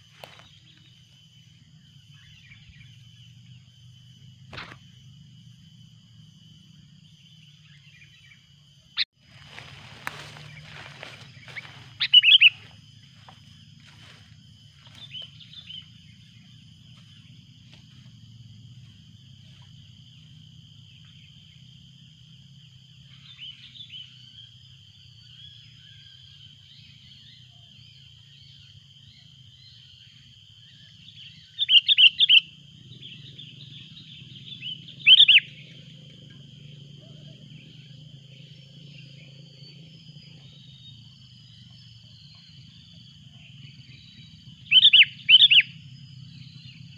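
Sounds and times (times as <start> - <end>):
birds calling: 6.7 - 21.7, 30.7 - 39.0, 39.6 - 46.9.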